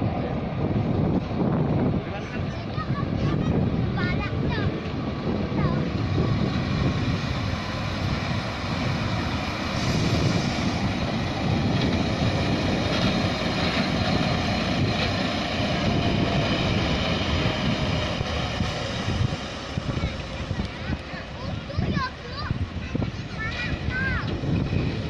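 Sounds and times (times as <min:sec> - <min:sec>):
engine rumbling: 0:00.0 - 0:25.0
wind buffeting microphone: 0:00.0 - 0:25.0.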